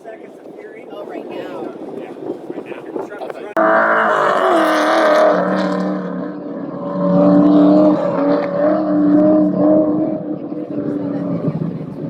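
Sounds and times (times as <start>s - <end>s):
truck engine revving hard: 3.5s - 12.0s.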